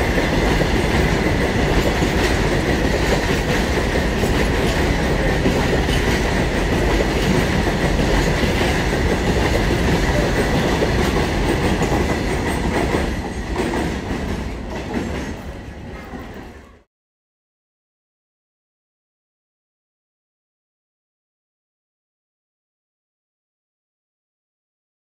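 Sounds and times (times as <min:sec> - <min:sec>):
train wheels rumbling: 0:00.0 - 0:16.9.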